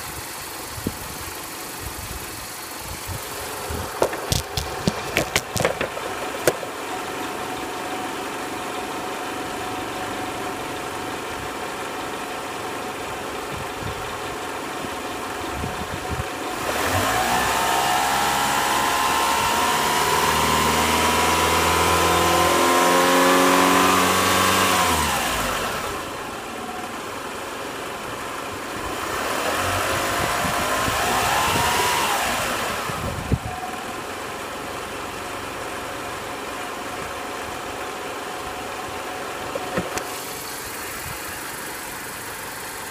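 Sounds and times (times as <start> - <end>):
car engine idling and revving: 0.0 - 42.9
sharp clicks: 3.9 - 6.7.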